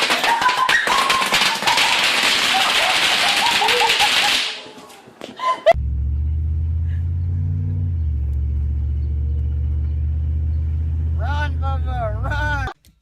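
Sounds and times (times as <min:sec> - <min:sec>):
vehicle engine running: 0:05.8 - 0:12.7.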